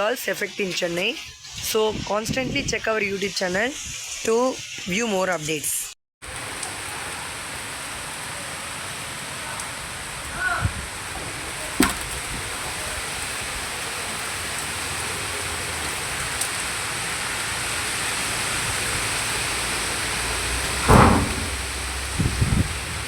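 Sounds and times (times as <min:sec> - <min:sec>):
wind: 0:00.0 - 0:05.5, 0:06.2 - 0:23.0
heavy rain: 0:06.2 - 0:23.0.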